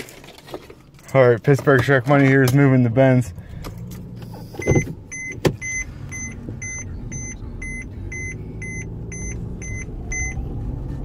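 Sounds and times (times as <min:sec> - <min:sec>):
car engine idling: 0:00.8 - 0:11.0
car warning chime beeping: 0:04.4 - 0:10.4.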